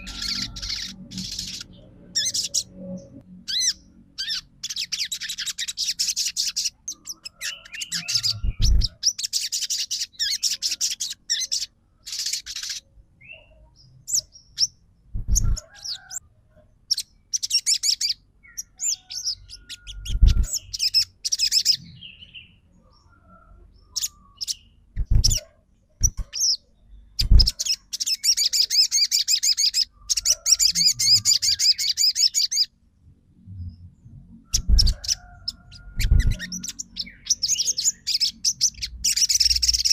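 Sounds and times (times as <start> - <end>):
sunbird rapid chattering song: 0.0 - 2.7, 3.5 - 13.4, 16.9 - 22.2, 24.0 - 25.4, 27.2 - 32.7, 34.6 - 39.9.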